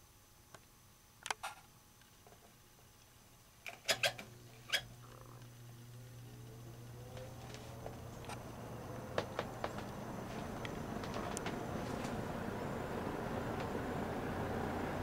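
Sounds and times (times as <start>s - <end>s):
fan motor humming and whirring: 3.6s - 15.0s.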